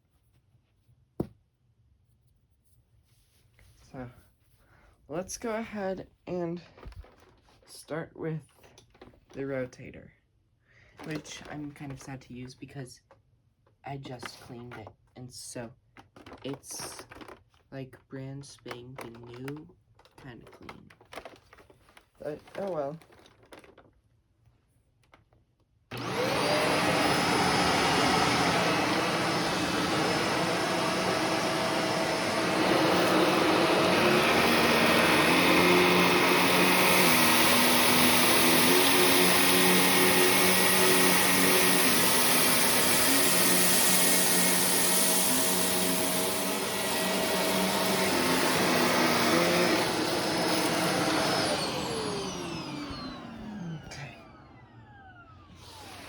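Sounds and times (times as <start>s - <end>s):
vacuum cleaner motor whining: 25.9s - 56.0s.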